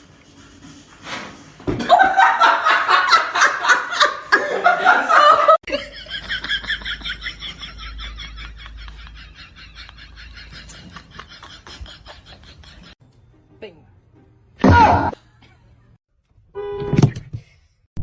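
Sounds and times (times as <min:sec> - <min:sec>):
person laughing hard: 0:01.8 - 0:13.0.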